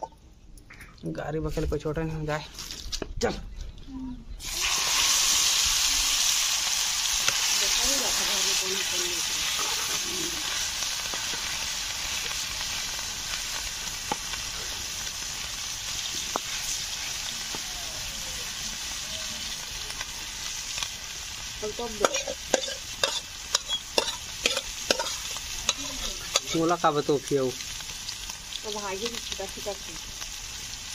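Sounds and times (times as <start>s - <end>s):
fish roe sizzling in oil: 4.4s - 30.9s
metal spatula in pan: 21.6s - 26.8s.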